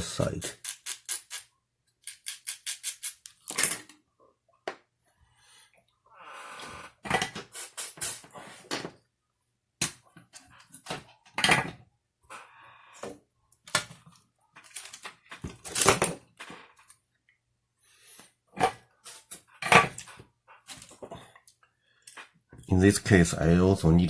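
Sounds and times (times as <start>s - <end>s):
small parts clicking and scraping: 0.4s - 4.0s, 14.6s - 16.1s.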